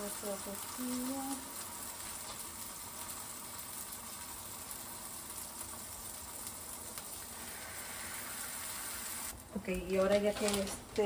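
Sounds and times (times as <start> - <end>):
tortillas sizzling: 0.0 - 11.0.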